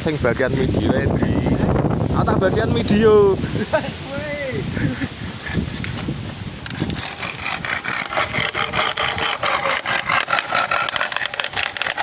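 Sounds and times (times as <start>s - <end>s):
saw cutting through wood: 0.0s - 1.8s, 5.0s - 12.0s.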